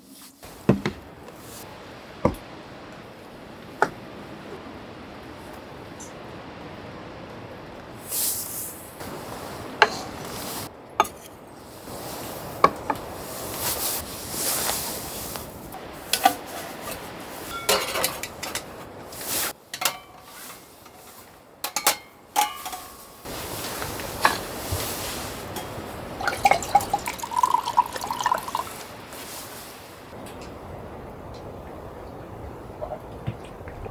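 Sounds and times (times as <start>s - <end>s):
steady hiss: 0.0s - 33.9s
dishes clinking and knocking: 0.6s - 1.5s, 9.8s - 10.4s, 11.0s - 11.4s, 16.1s - 18.8s, 19.7s - 23.1s, 25.5s - 28.8s.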